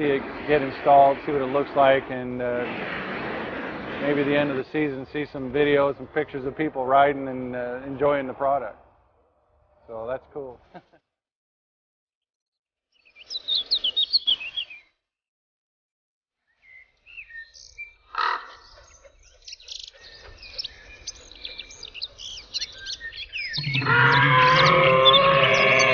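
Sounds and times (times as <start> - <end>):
small birds chirping: 12.9 - 15.0, 16.5 - 25.9.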